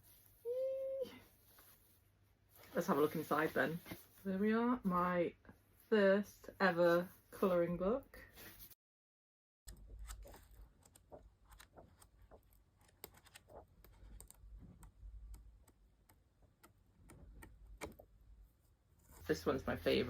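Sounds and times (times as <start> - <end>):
book pages being turned: 1.4 - 4.3, 9.8 - 14.9.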